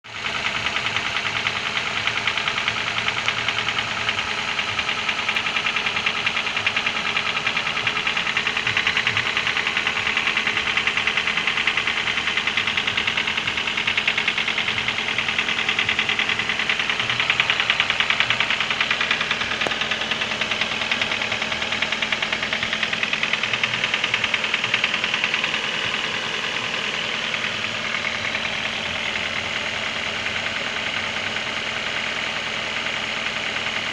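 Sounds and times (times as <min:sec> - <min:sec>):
petrol engine knocking: 0:00.1 - 0:33.9.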